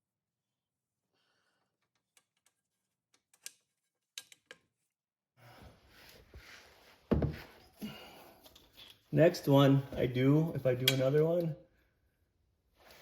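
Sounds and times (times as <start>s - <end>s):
rustling and shuffling: 5.6s - 9.2s.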